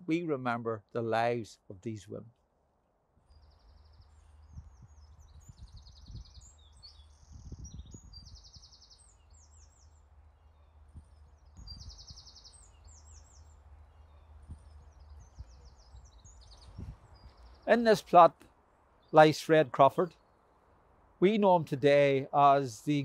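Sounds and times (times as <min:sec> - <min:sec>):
songbirds trilling and chirping: 0:00.8 - 0:23.0
low steady rumble: 0:09.3 - 0:17.6.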